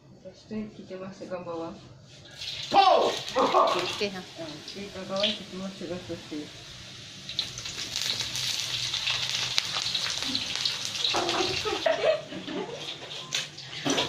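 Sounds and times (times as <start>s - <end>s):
sausage sizzling in hot oil: 2.2s - 14.0s.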